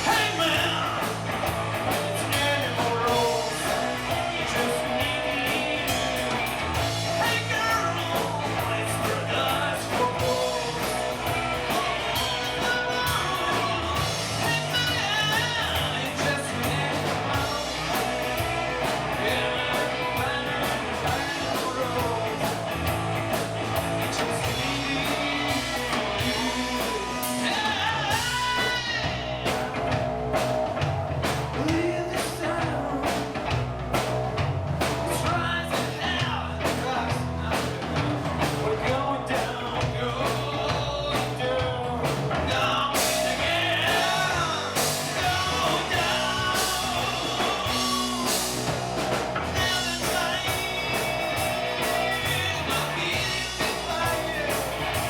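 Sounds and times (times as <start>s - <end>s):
rock band playing: 0.0s - 55.0s
person singing: 24.1s - 29.8s, 35.2s - 48.7s, 49.5s - 55.0s.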